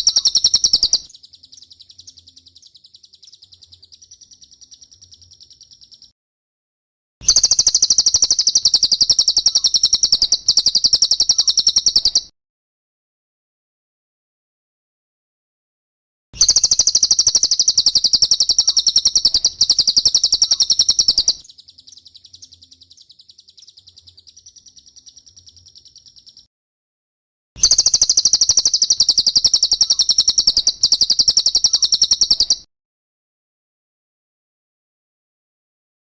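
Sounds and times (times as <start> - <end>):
bird high-pitched trill: 0.0 - 6.1, 7.2 - 12.3, 16.4 - 26.5, 27.6 - 32.7.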